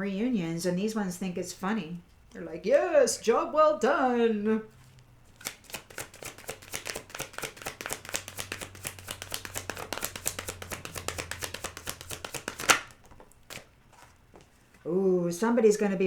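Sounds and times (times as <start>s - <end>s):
cards being shuffled: 4.7s - 14.8s
cards slapping: 4.8s - 14.5s.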